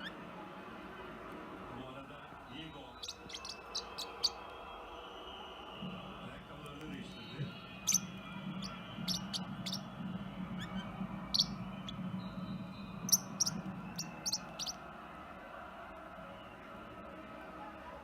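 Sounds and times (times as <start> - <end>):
parrotlet chirping: 2.9 - 4.4, 7.8 - 14.8.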